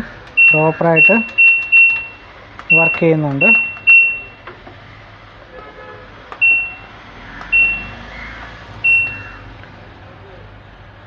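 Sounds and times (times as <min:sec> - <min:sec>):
washing machine short high beeps: 0:00.4 - 0:04.4, 0:06.4 - 0:06.8, 0:07.6 - 0:08.0, 0:08.9 - 0:09.3.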